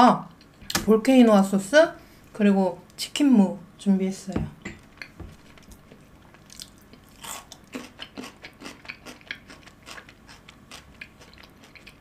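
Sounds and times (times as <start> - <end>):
crunchy chewing of fried food: 4.9 - 12.0.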